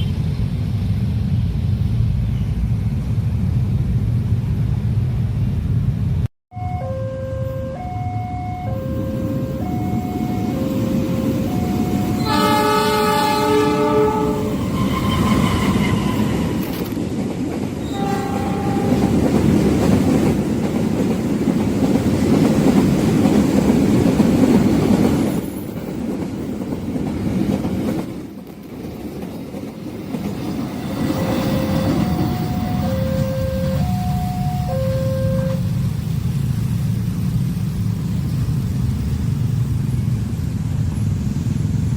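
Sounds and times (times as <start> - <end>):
train rumble and wheel clatter: 0.0 - 6.3, 7.4 - 41.9
two-tone crossing alarm: 6.5 - 16.3, 31.2 - 35.7
train horn: 6.5 - 16.7, 17.8 - 19.4, 31.2 - 35.7.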